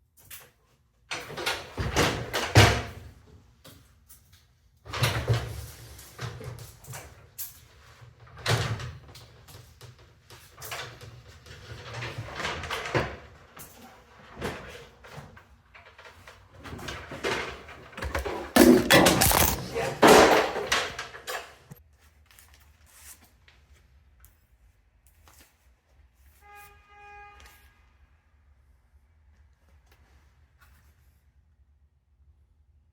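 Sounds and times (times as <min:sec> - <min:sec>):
objects knocking and banging: 0:17.1 - 0:21.8
junk clattering: 0:18.0 - 0:21.8.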